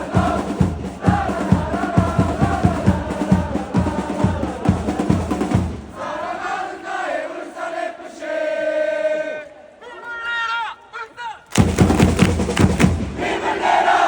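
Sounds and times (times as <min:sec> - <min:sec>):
bass drum: 0:00.0 - 0:06.0, 0:11.6 - 0:13.3
crowd chanting: 0:00.0 - 0:10.1, 0:12.7 - 0:14.0.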